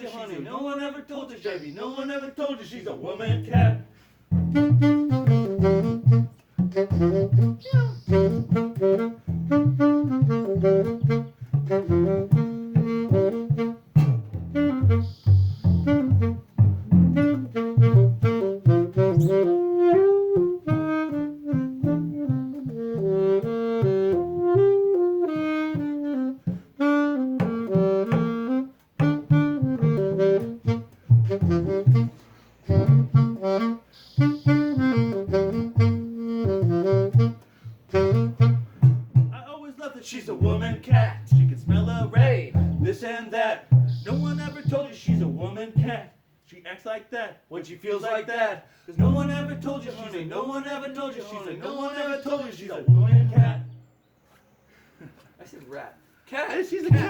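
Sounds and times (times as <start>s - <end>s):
saxophone playing fast notes: 3.3s - 39.4s, 40.4s - 42.9s, 43.7s - 45.9s, 49.0s - 50.2s
walking bass line: 3.3s - 39.4s, 40.4s - 43.0s, 43.7s - 46.0s, 49.0s - 50.2s, 52.9s - 53.8s.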